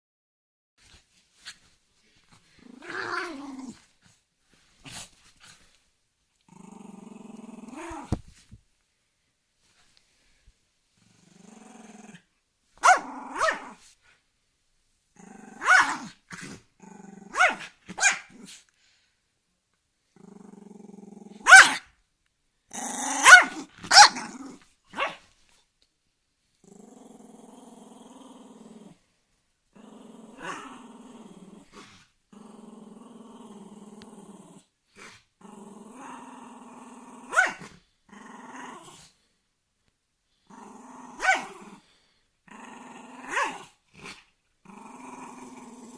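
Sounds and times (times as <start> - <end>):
dog growling: 2.6 - 3.8, 6.5 - 8.2, 11.0 - 12.2, 20.2 - 21.4, 26.6 - 29.0, 29.8 - 37.4, 40.5 - 45.9
dog barking: 12.8 - 13.6, 17.3 - 18.3, 21.4 - 21.8, 23.2 - 24.3, 25.0 - 25.2, 37.3 - 37.6.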